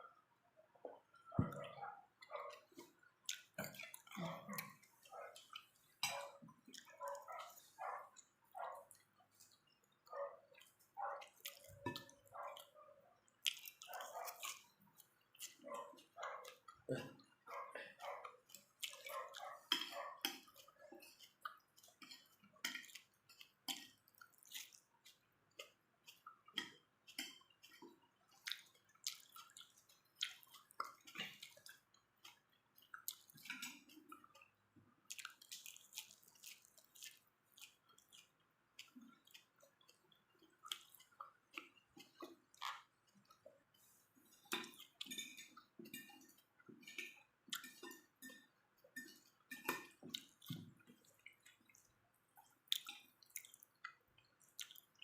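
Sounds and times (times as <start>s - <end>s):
wet chewing: 0.9s - 55.0s
lip smacks: 46.8s - 55.0s.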